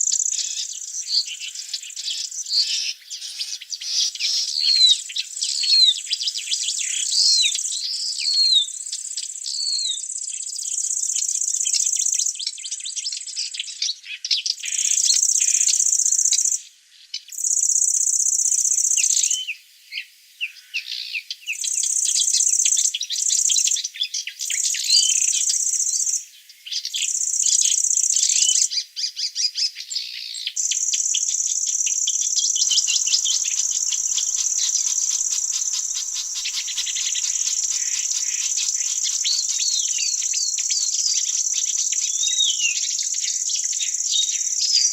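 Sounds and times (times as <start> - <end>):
bird chirping: 0.0 - 44.9
high insect buzz: 30.6 - 44.6
rapid ticking chirps: 30.6 - 44.7.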